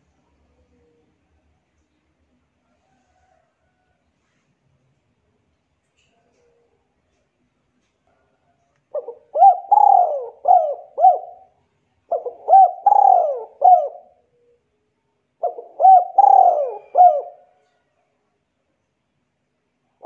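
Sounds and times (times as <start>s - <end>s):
bird calling: 9.0s - 11.5s, 12.1s - 14.2s, 15.4s - 17.4s.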